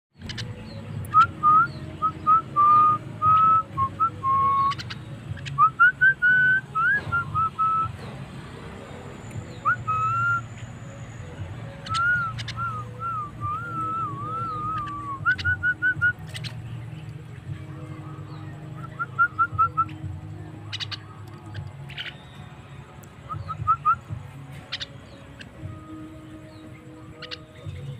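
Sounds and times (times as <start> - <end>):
bird whistling song: 0.1 - 27.9
sharp bird clicks: 0.2 - 1.8, 4.5 - 5.7, 11.8 - 13.7, 14.4 - 17.2, 20.7 - 22.3, 24.6 - 25.6.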